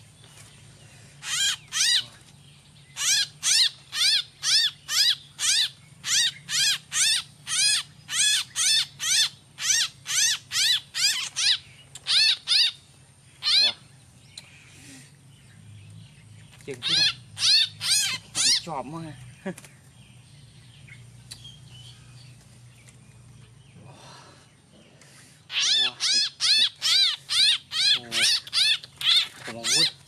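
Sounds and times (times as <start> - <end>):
bird squawking shrilly: 1.2 - 2.2, 3.0 - 12.8, 13.4 - 13.8, 16.8 - 18.8, 25.5 - 30.0.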